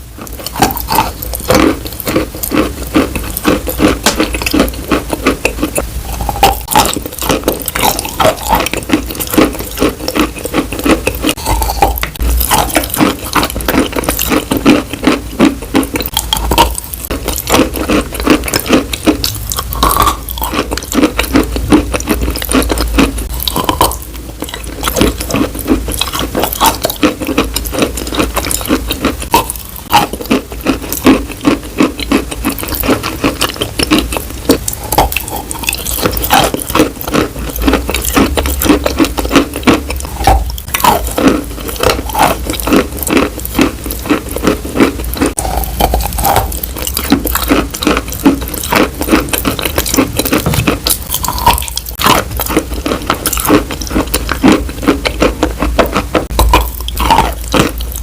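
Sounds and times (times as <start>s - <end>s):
tapping and scratching: 45.3s - 54.2s.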